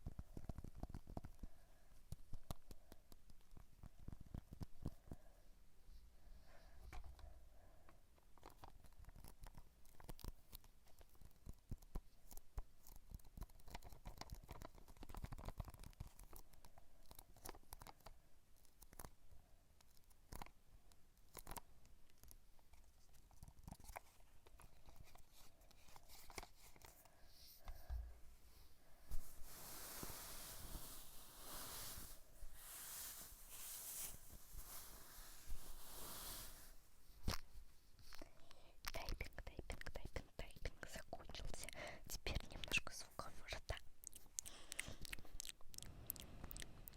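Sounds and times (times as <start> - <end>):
small clicks and crackles: 0.0 - 5.3, 6.8 - 27.1.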